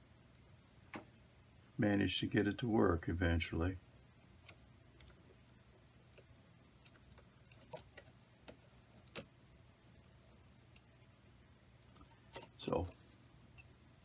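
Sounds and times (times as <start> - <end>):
low steady hum: 0.0 - 14.0
metallic clicks of tools handled: 4.2 - 5.2, 6.1 - 9.3, 11.8 - 13.0.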